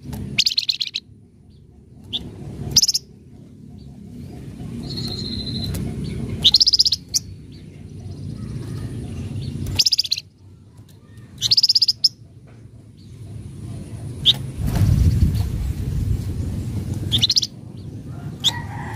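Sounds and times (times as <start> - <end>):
bird harsh chattering: 0.3 - 1.1, 3.8 - 7.4, 8.1 - 10.3, 11.3 - 12.2, 17.1 - 17.6.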